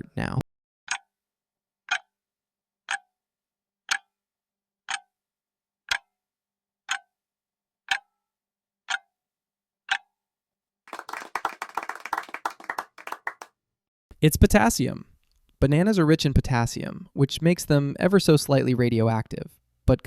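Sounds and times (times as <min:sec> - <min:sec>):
clock-like ticks: 0:00.9 - 0:01.1, 0:01.9 - 0:02.1, 0:02.9 - 0:03.1, 0:03.9 - 0:04.2, 0:04.9 - 0:05.1, 0:05.9 - 0:06.1, 0:06.9 - 0:07.1, 0:07.9 - 0:08.1, 0:08.9 - 0:09.1, 0:09.9 - 0:10.1.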